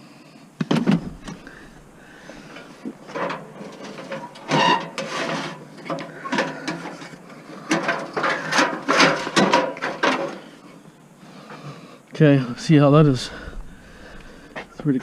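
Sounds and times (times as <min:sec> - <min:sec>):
load scraping and knocking in van: 0:00.6 - 0:10.4.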